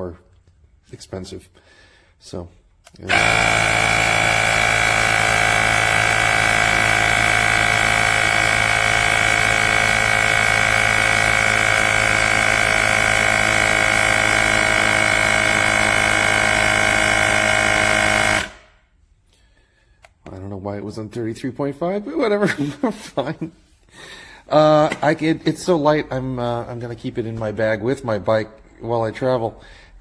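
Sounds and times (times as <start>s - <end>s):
electric air compressor running: 3.0s - 18.8s.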